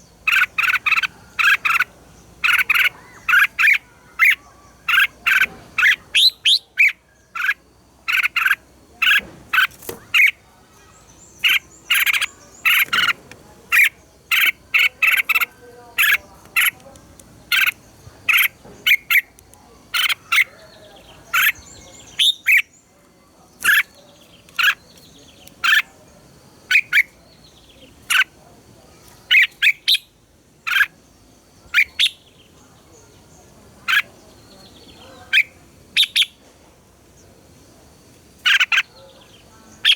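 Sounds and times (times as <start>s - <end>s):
bird singing whistled notes: 5.0s - 7.6s, 20.0s - 22.8s, 31.7s - 32.5s, 34.3s - 36.4s.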